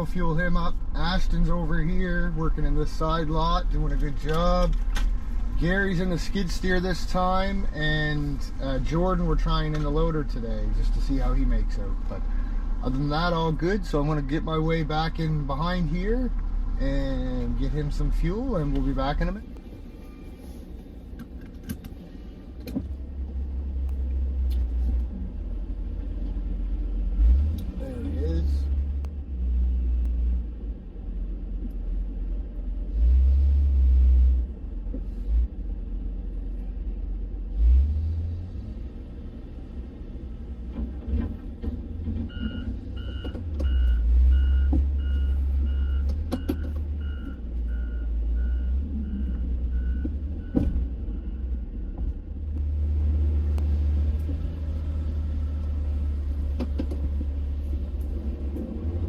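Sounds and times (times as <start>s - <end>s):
truck engine idling: 0.0s - 29.4s, 40.4s - 59.0s
reversing alarm beeping: 42.3s - 52.0s.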